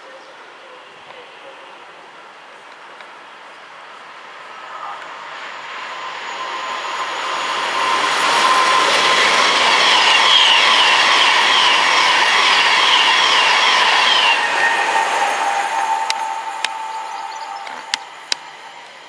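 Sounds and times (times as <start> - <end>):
electric train passing at speed: 0.4 - 19.0
steady whine: 3.9 - 19.0
wheels on rail rushing: 4.2 - 19.0.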